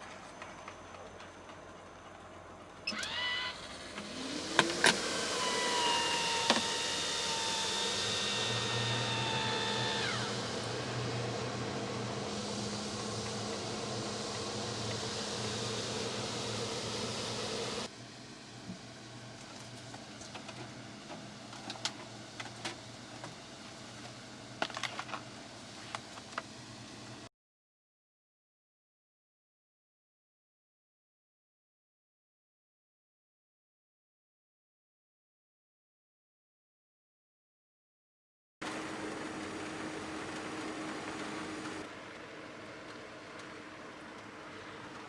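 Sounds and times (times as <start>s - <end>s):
small electric motor whine: 2.8s - 17.9s
low hum: 2.9s - 17.9s.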